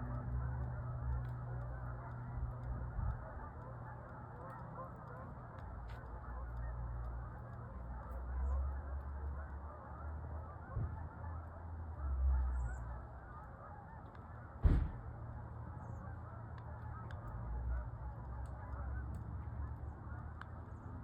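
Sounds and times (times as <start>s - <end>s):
low rumble: 0.0s - 3.9s
geese honking overhead: 0.0s - 21.0s
sharp thump: 14.6s - 15.1s.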